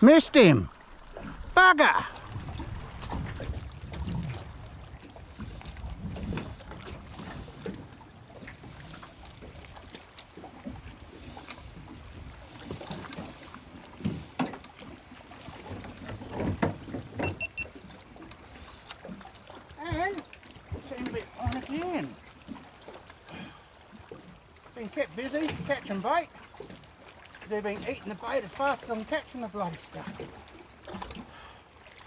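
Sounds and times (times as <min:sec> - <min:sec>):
wind on microphone: 0:02.1 - 0:09.9
gear knocking in boat: 0:02.1 - 0:22.6
water lapping at boat hull: 0:02.1 - 0:32.0.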